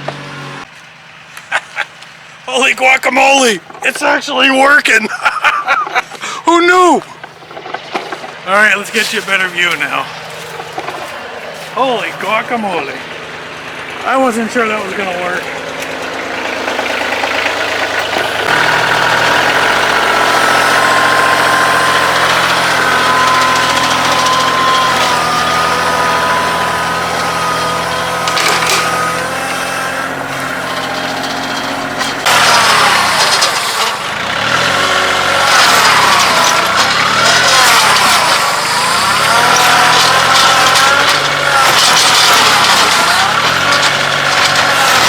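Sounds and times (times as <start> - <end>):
tractor diesel engine under load: 0.0 - 45.0.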